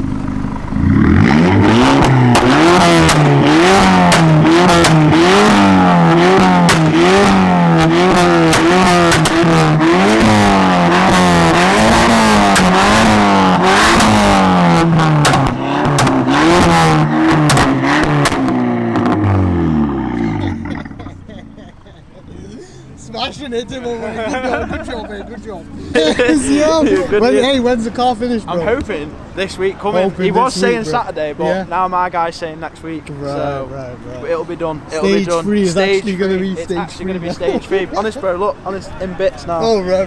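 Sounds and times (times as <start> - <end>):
car engine revving in blips: 0.0 - 21.7
exhaust popping and crackling: 0.0 - 33.2.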